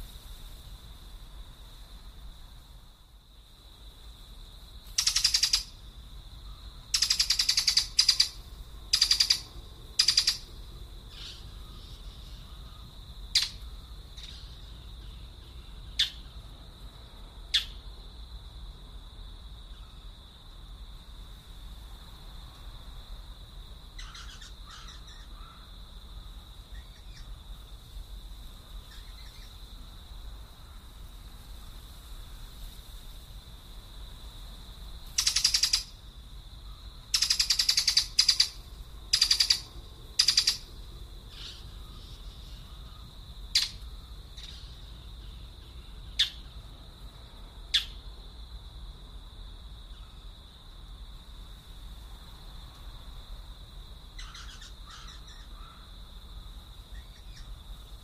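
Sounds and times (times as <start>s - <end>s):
birds calling: 5.0s - 5.7s, 6.5s - 10.5s, 24.0s - 25.6s, 35.2s - 35.9s, 37.1s - 40.7s, 54.2s - 55.8s.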